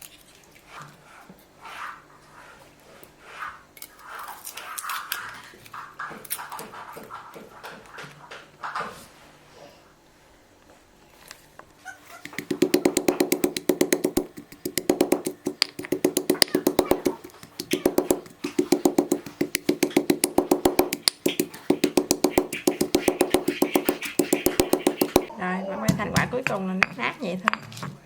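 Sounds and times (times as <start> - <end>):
knife chopping on cutting board: 12.3 - 25.3.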